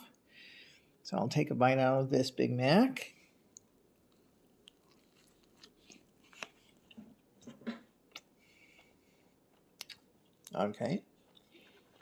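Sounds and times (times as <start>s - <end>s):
faint chewing: 3.3s - 12.0s.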